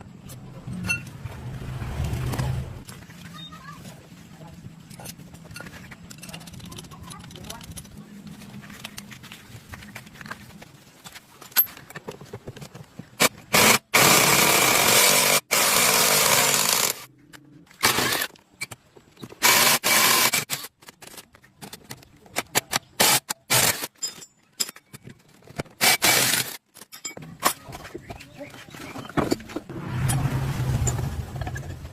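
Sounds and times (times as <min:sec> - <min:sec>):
power tool running: 0:13.6 - 0:17.1, 0:19.4 - 0:20.6.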